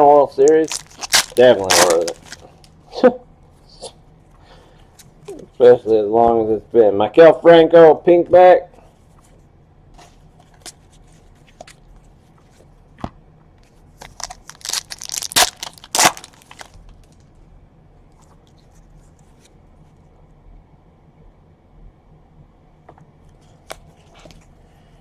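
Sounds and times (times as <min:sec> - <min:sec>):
wrapper crinkling and tearing: 0:00.5 - 0:02.7, 0:14.0 - 0:17.3.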